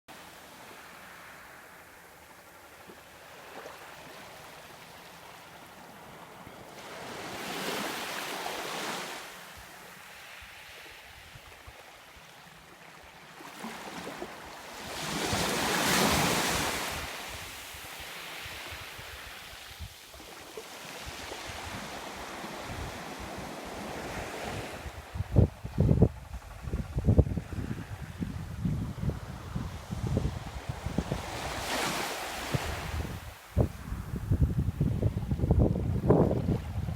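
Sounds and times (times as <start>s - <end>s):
waves crashing: 13.5s - 25.0s, 28.5s - 34.0s
wind rumble on microphone: 21.0s - 36.9s.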